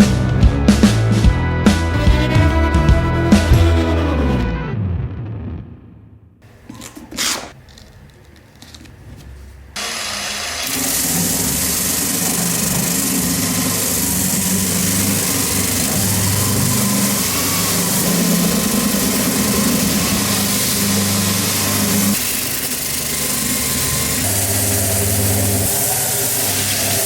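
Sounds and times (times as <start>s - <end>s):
low hum: 3.2s - 6.3s
electric power tool whirring: 6.6s - 7.9s, 9.8s - 27.0s.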